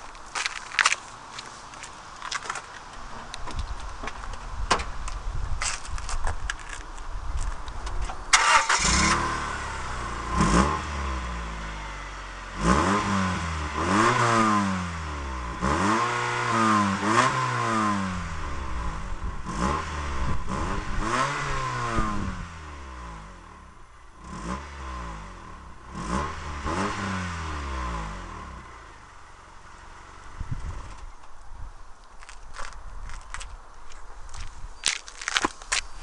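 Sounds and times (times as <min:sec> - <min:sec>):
car engine revving: 0:08.3 - 0:31.2.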